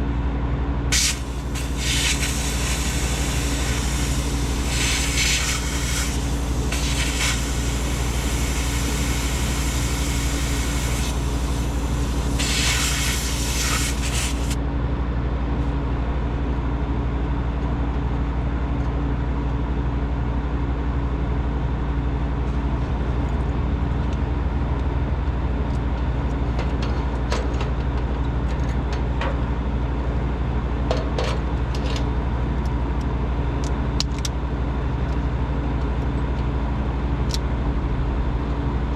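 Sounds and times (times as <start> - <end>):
refrigeration motor hum: 0.0 - 38.9
hiss: 0.9 - 14.6.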